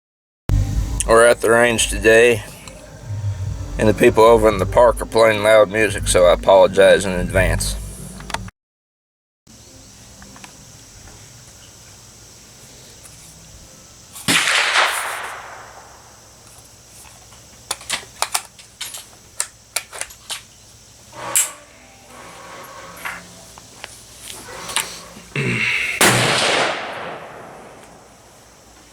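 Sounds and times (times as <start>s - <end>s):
short sharp cracks: 14.2s - 16.2s, 25.9s - 28.5s
rifle shot with echo: 14.3s - 16.2s, 26.0s - 28.4s.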